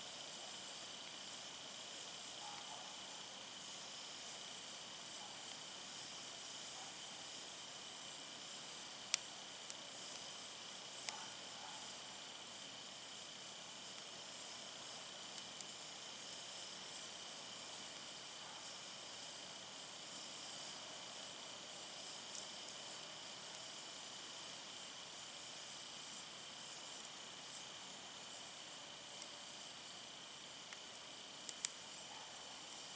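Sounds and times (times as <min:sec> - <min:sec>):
campfire burning: 0:00.0 - 0:32.9
faint hiss: 0:00.0 - 0:32.9
fire crackling pops: 0:00.0 - 0:32.9
small ticks: 0:02.4 - 0:02.8, 0:09.1 - 0:10.3, 0:11.0 - 0:12.0, 0:14.9 - 0:16.6, 0:22.3 - 0:22.7, 0:30.6 - 0:32.9.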